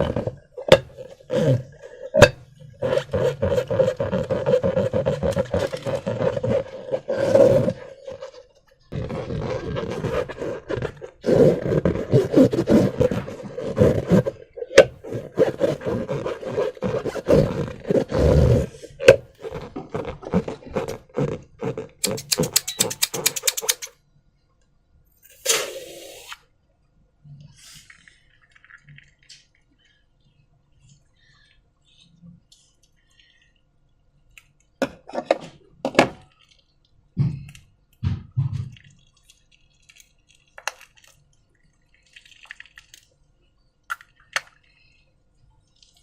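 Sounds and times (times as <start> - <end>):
slime squelching through balloon: 0.0 - 23.9
rattle of clicks: 22.0 - 23.9.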